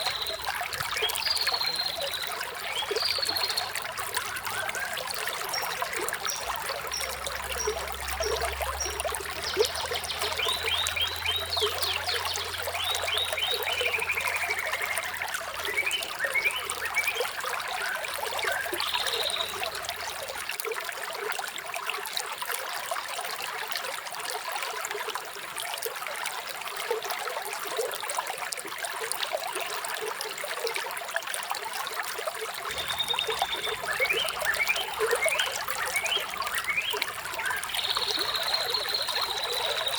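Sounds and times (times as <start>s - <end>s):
birds chirping: 0.0s - 17.2s, 32.7s - 39.9s
water trickling and babbling: 0.0s - 39.9s.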